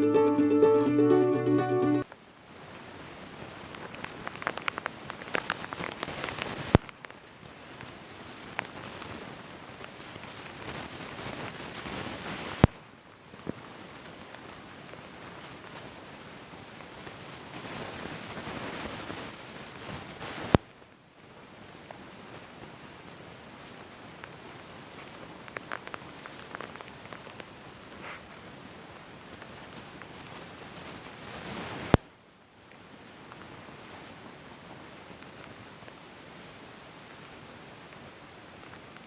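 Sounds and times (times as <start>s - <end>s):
scattered crackling: 3.8s - 7.0s.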